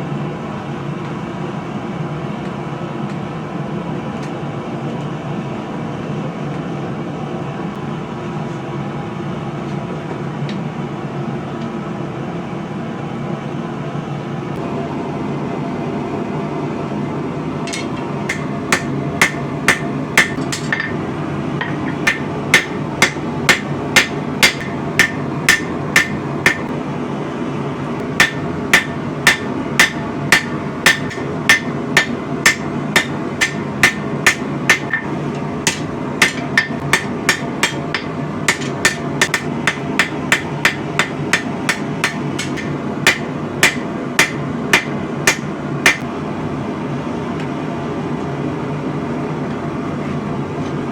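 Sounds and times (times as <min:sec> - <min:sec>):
hammer striking steel on anvil: 0:17.7 - 0:21.0, 0:21.6 - 0:26.7, 0:28.2 - 0:46.0.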